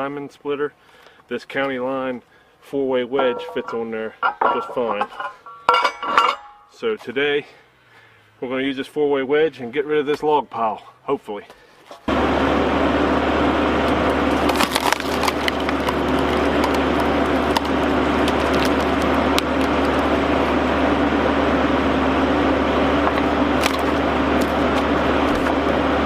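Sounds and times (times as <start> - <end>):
log splitter engine running: 12.1 - 26.0
wood cracking and splintering: 13.8 - 20.6, 23.0 - 25.8.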